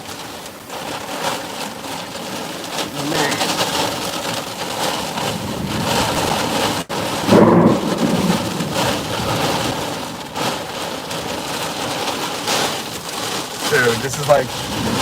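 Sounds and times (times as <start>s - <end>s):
heavy rain lashing a truck: 0.0s - 15.0s
storm wind gusting and howling: 2.3s - 12.3s, 13.6s - 15.0s.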